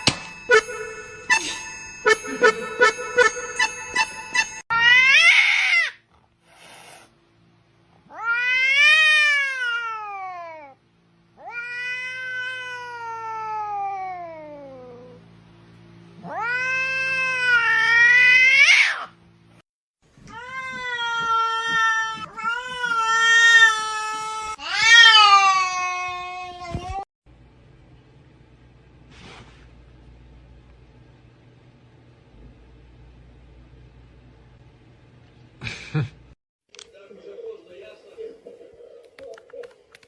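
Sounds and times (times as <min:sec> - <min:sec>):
cat yowling: 0:04.7 - 0:06.0, 0:08.1 - 0:10.8, 0:11.4 - 0:15.2, 0:16.2 - 0:19.2, 0:20.3 - 0:26.8.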